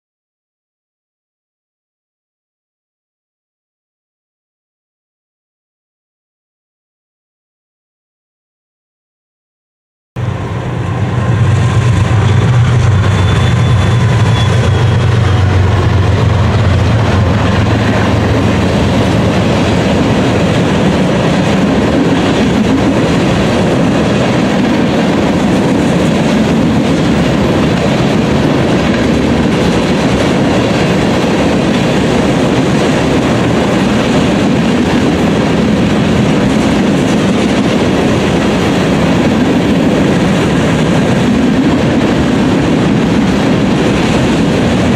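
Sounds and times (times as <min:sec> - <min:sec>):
tank cars rumbling past: 0:10.2 - 0:22.9
diesel locomotives droning: 0:10.2 - 0:44.9
wheel clickety-clack over rail joints: 0:11.9 - 0:44.9.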